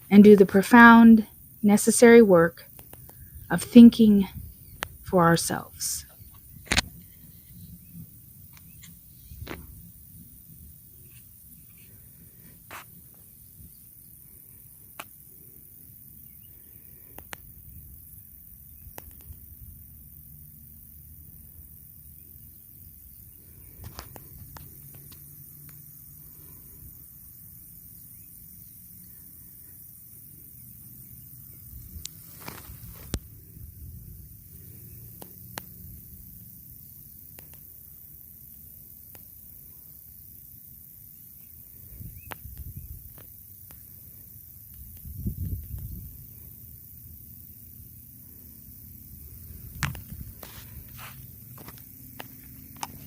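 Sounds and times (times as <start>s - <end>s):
faint hiss: 0.0s - 53.0s
faint sharp ticks: 2.7s - 3.3s, 4.7s - 5.0s, 14.9s - 15.2s, 17.1s - 17.5s, 18.8s - 19.5s, 23.8s - 26.0s, 32.0s - 33.3s, 35.0s - 35.8s, 37.2s - 37.7s, 39.0s - 39.4s, 42.1s - 44.0s, 49.6s - 50.5s, 51.7s - 53.0s.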